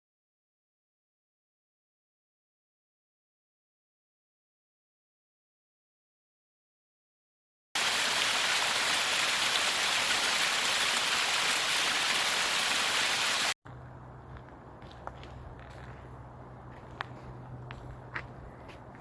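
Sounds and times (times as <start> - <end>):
running water rushing: 7.8 - 13.6.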